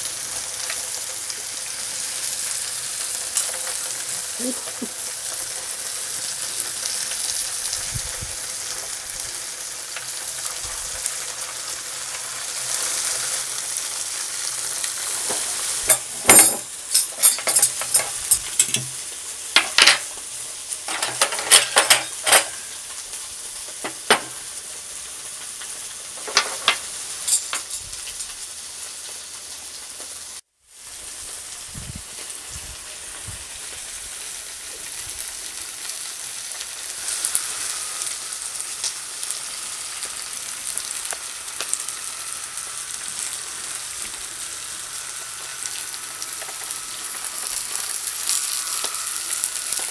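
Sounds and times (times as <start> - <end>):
food sizzling on a grill: 0.0 - 49.9
utensil clicking and knocking: 23.8 - 24.4.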